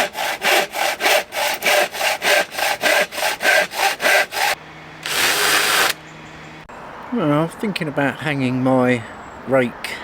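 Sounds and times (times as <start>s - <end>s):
hand saw cutting wood: 0.0s - 6.0s.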